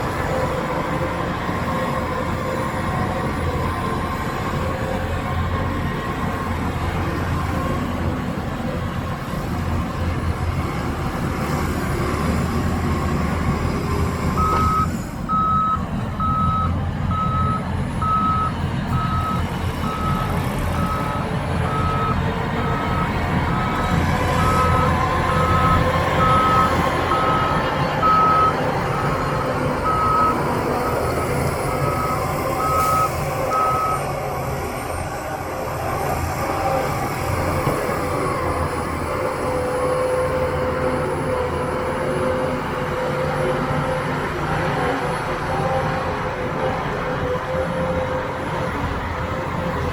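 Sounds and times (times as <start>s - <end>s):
heavy diesel machinery running: 0.0s - 49.9s
reversing alarm beeping: 14.4s - 23.2s, 24.4s - 34.1s.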